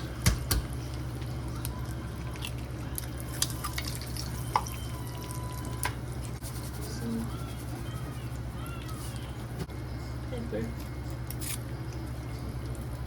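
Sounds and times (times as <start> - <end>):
eggs frying in grease: 0.0 - 6.8.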